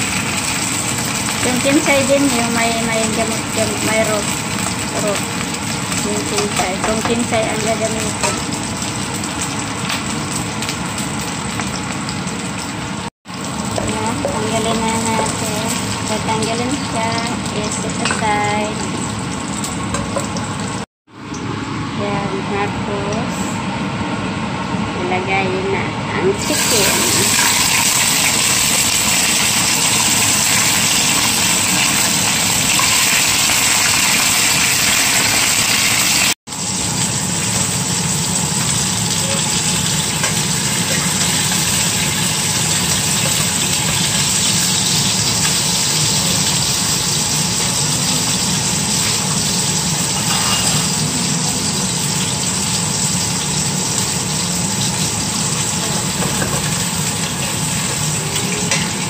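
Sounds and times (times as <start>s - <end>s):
chicken sizzling in hot oil: 0.0s - 21.8s, 26.4s - 59.0s.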